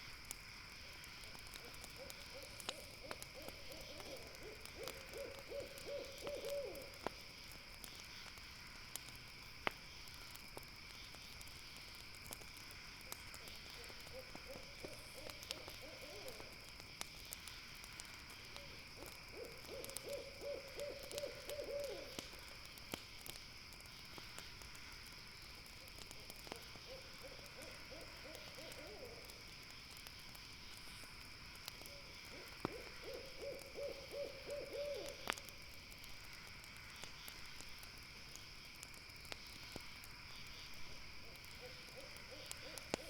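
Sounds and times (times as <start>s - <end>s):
campfire crackling: 0.0s - 43.0s
night insects chirring: 0.0s - 43.0s
owl trilled hoot: 1.6s - 7.0s, 13.8s - 16.4s, 18.6s - 22.2s, 26.9s - 29.3s, 31.9s - 35.2s, 41.6s - 43.0s.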